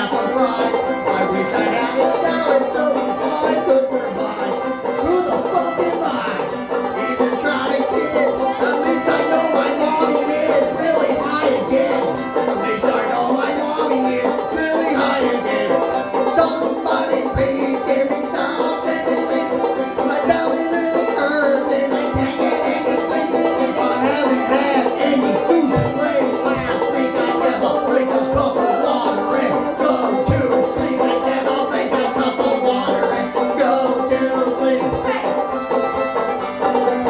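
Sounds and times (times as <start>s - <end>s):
band playing a song: 0.0s - 37.0s.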